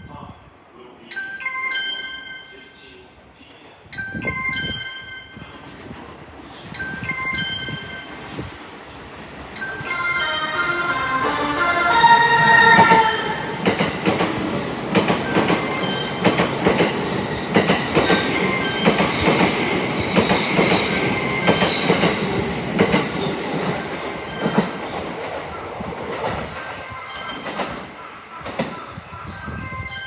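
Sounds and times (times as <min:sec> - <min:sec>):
train music horn: 0:09.9 - 0:14.7
train wheels clattering: 0:11.6 - 0:26.6.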